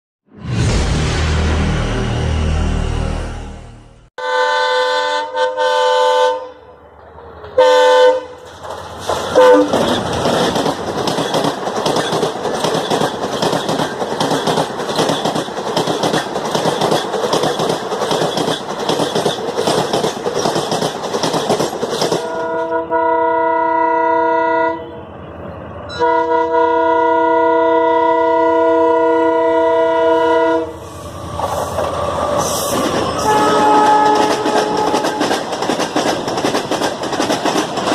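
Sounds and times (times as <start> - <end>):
train passing at speed: 0.3 - 37.9
locomotive horn blasts: 4.2 - 6.7, 7.6 - 8.4, 9.4 - 9.8, 22.2 - 25.0, 25.9 - 30.8, 33.2 - 35.3
wheels clattering over rail joints: 8.4 - 22.5.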